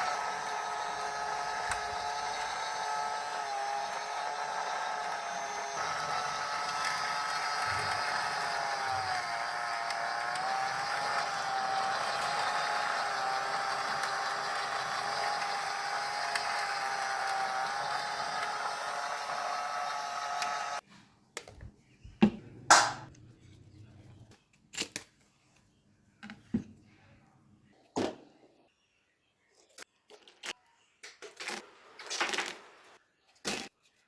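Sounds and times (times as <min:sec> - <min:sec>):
small electric motor whine: 0:00.0 - 0:20.8.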